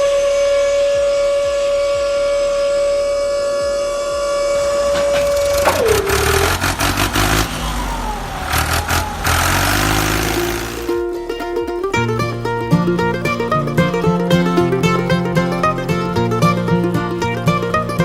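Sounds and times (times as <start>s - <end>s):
electric motor whining: 4.2s - 11.0s
rattling grinding noise: 4.6s - 11.2s.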